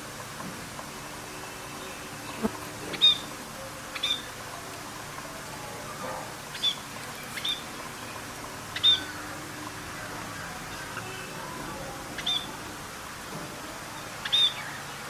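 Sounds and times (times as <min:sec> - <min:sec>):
steady background hiss: 0:00.0 - 0:15.0
bird chirping: 0:03.9 - 0:04.3, 0:06.5 - 0:09.4, 0:12.2 - 0:12.6, 0:14.2 - 0:15.0.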